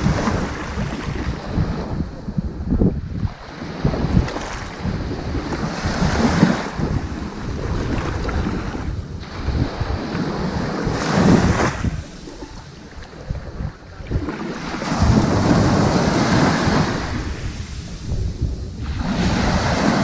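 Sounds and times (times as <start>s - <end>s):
wind rumbling on microphone: 0.0s - 20.0s
surf washing onto beach: 3.2s - 20.0s.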